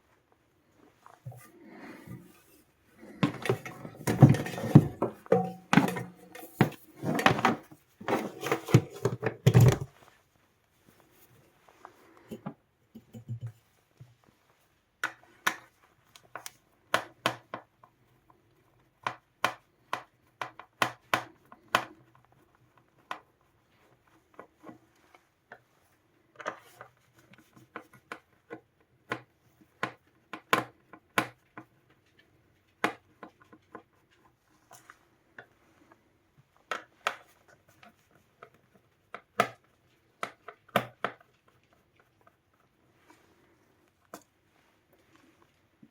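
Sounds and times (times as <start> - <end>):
tools clicking and tapping: 3.2 - 9.9.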